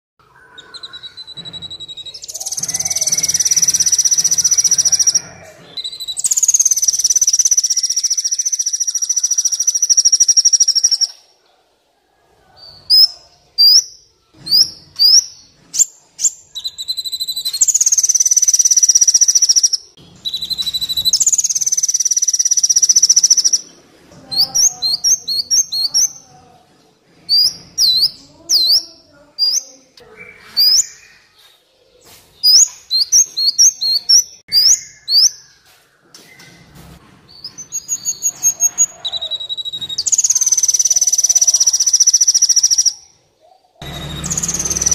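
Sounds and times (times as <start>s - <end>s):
sunbird high ringing trills: 0.3s - 11.1s
sunbird sharp quick chirps: 0.5s - 11.2s, 15.8s - 23.6s.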